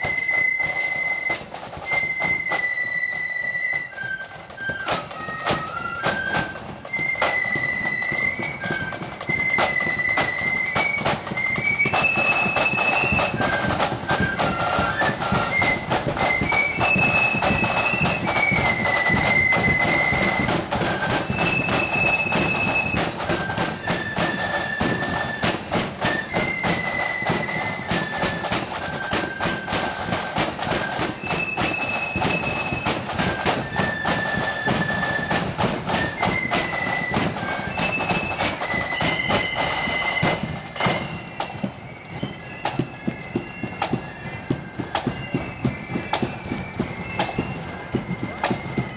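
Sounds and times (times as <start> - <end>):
drums beating time: 0.0 - 48.9
flutes playing melody: 0.0 - 48.9.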